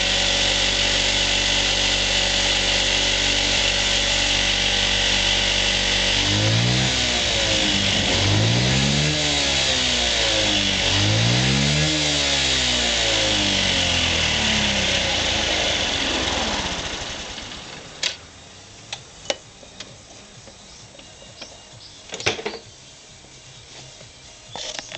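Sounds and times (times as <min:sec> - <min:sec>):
scooter engine revving: 0:00.0 - 0:18.6.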